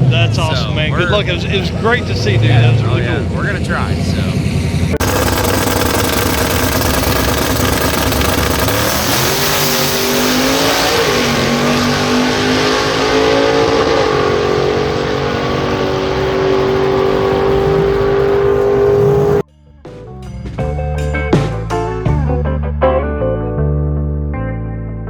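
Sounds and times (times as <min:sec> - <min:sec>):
truck engine at full throttle: 0:00.0 - 0:19.4.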